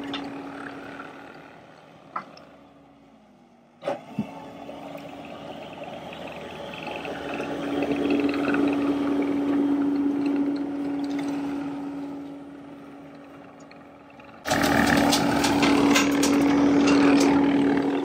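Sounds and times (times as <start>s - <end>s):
machine drone: 0.0s - 3.1s, 3.8s - 18.0s.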